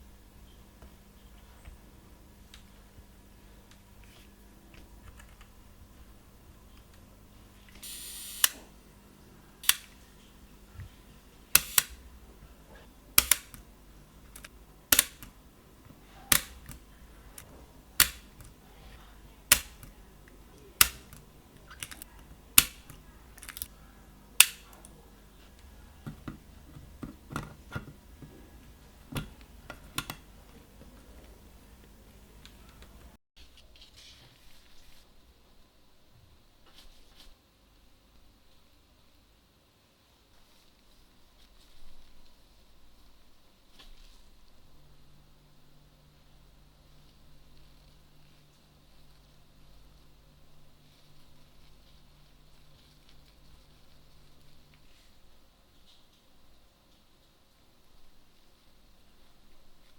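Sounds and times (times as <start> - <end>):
short whirring hiss: 7.8 - 8.7.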